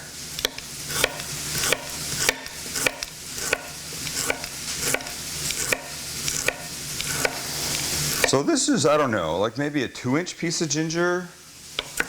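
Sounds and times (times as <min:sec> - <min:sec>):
food sizzling in a pan: 0:00.0 - 0:12.0
knife chopping on cutting board: 0:00.4 - 0:08.4, 0:11.8 - 0:12.0.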